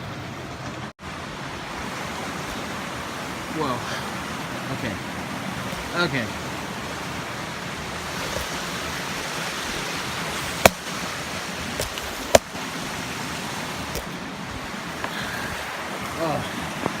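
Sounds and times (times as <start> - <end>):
waterfall rushing: 1.0 - 17.0
sharp clicks or knocks: 11.8 - 12.5.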